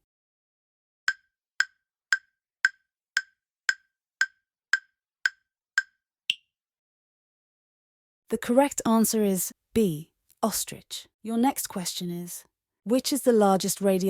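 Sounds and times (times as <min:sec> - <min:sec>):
countdown timer ticking: 0:01.1 - 0:06.4.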